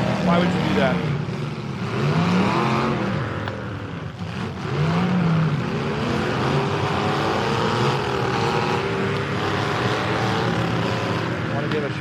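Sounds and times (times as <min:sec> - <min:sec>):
truck engines revving: 0:00.0 - 0:12.0.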